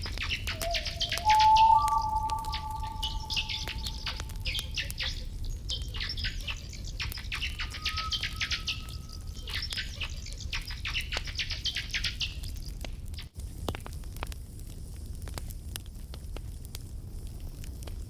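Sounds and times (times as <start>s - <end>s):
campfire crackling: 0.0s - 18.0s
birds chirping: 0.1s - 10.0s.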